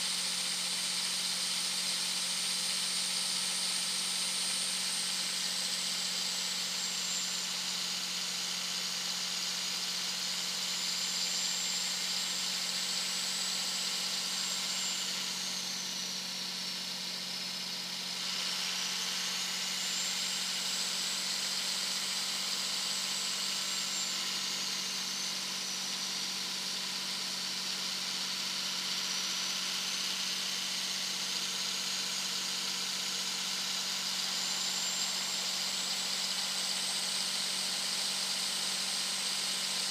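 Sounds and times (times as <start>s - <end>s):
engine and road drone: 14.6s - 16.8s.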